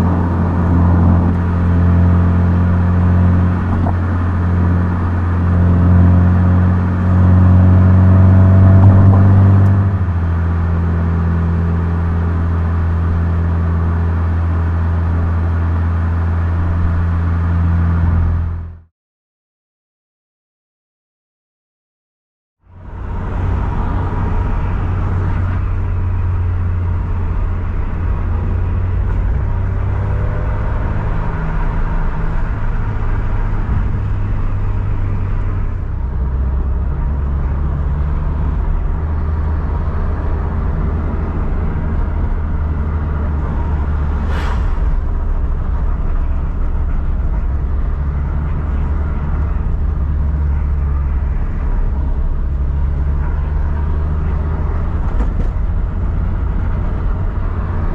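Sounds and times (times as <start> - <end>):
car engine drone: 0.0 - 18.9, 22.6 - 57.9
brief high sweep: 43.6 - 47.4.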